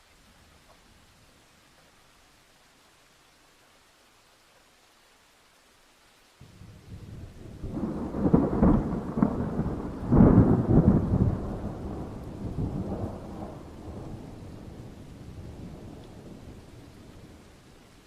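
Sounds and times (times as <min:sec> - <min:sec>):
faint hiss of rain: 0:00.0 - 0:18.0
distant thunder rumble: 0:06.5 - 0:17.8.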